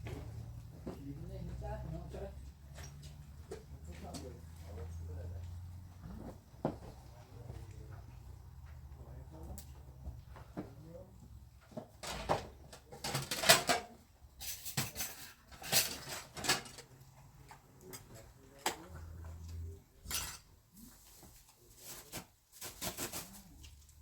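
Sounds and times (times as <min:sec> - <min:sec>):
hard objects clattering: 0:11.7 - 0:18.9.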